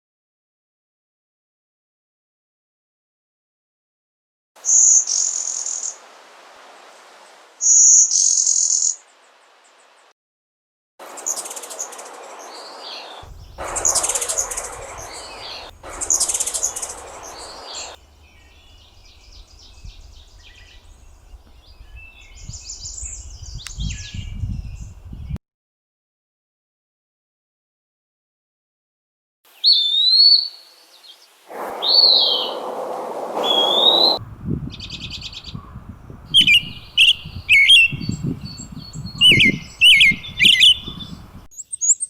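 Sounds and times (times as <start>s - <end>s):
songbirds singing and calling: 11.1s - 25.4s, 29.6s - 42.0s.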